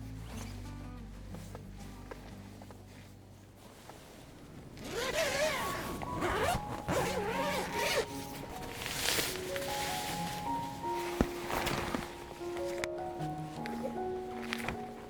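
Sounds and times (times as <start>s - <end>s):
zipper being pulled: 4.6s - 15.0s.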